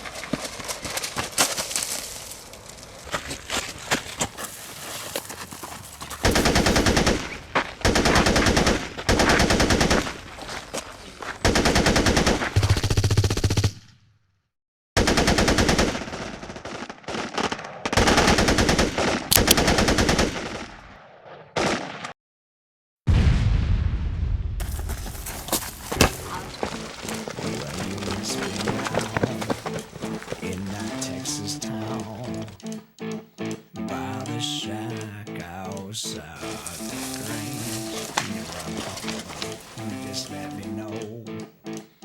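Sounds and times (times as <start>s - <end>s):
airsoft guns automatic fire: 6.2s - 10.5s, 11.4s - 13.9s, 15.0s - 21.0s.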